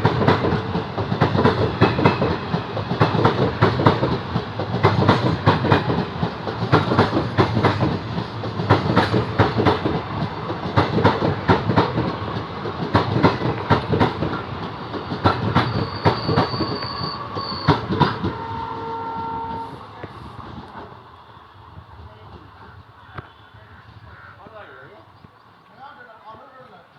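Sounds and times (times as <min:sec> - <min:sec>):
train wheels clattering: 0:00.0 - 0:21.0
high squeal: 0:15.1 - 0:18.6
train horn: 0:15.7 - 0:20.3.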